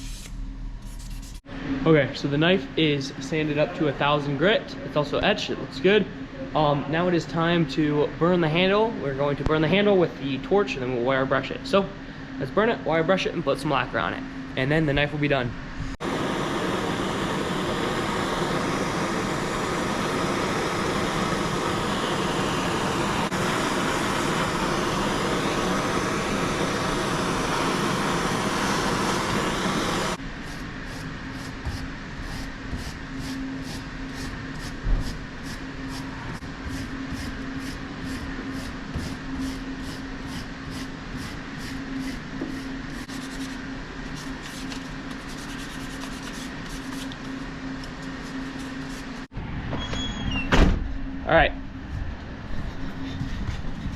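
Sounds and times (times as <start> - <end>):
steady low hum: 0.0 - 49.3, 50.8 - 53.9
torch flame hissing: 16.0 - 43.1.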